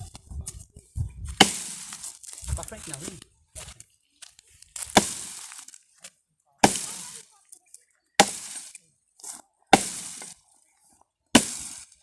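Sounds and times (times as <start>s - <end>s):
dry wood cracking and splintering: 1.4s - 8.8s.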